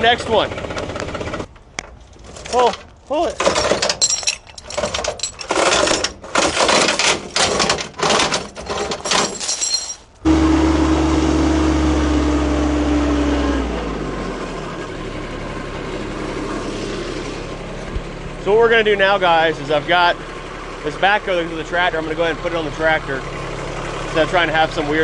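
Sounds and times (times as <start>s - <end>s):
engine running: 0.0s - 3.0s, 10.1s - 25.0s.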